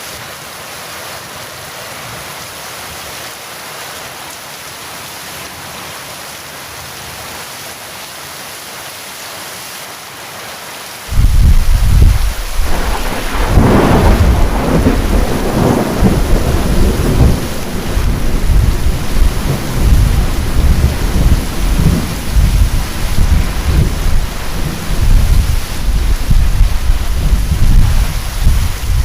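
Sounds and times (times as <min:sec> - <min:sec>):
heavy rain: 0:00.0 - 0:29.0
thunder rumbling: 0:11.1 - 0:29.0.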